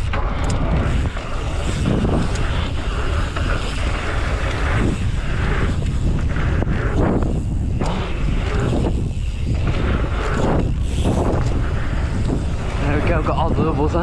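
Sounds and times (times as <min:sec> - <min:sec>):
bike tyres rolling: 0:00.0 - 0:14.0
wind buffeting microphone: 0:00.0 - 0:14.0.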